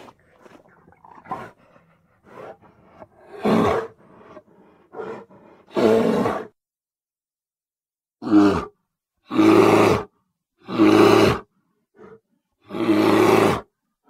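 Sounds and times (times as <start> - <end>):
bear roaring: 1.1 - 6.5.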